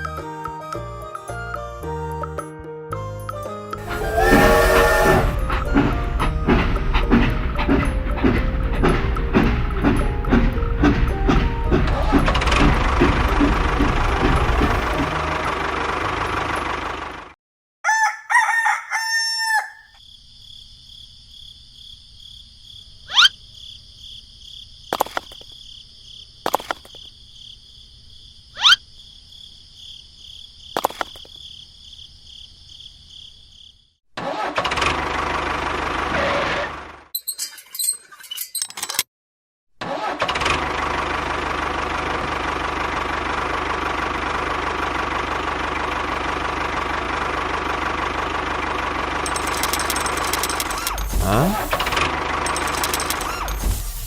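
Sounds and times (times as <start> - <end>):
rooster crowing: 3.8 - 5.5, 17.8 - 20.0
loud engine running: 3.8 - 17.4, 40.4 - 54.0
sharp clicks: 49.3 - 54.0.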